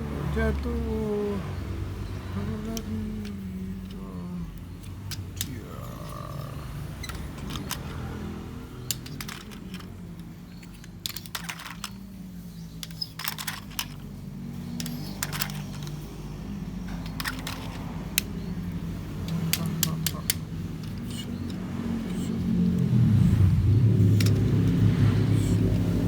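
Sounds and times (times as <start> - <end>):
low steady hum: 0.0 - 26.0
plastic toy parts clicking: 2.3 - 16.2, 16.9 - 23.0, 24.1 - 24.8.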